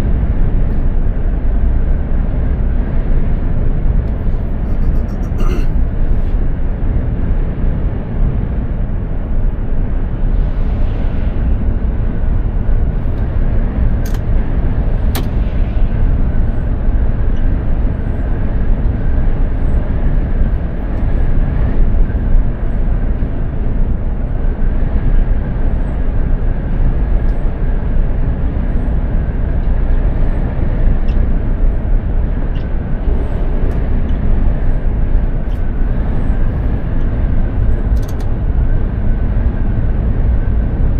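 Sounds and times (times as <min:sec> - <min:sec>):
heavy truck engine drone: 0:00.0 - 0:40.9
brief clicks: 0:37.9 - 0:38.3.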